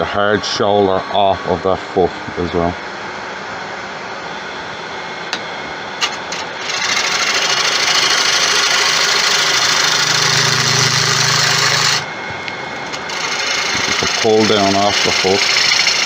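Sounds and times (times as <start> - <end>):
low pulsing hum: 1.0 - 16.0
lathe gouge shaving wood: 6.0 - 16.0.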